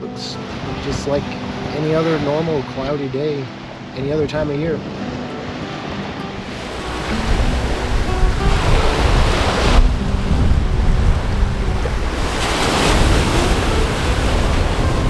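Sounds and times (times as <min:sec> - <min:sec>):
surf washing ashore: 0:00.0 - 0:15.0
wind rumble on microphone: 0:06.4 - 0:15.0.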